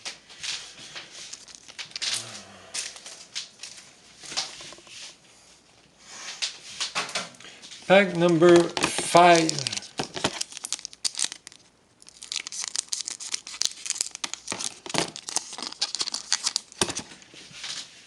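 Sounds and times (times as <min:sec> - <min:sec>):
wrapper tearing and crinkling: 0:01.3 - 0:04.6, 0:08.2 - 0:17.7.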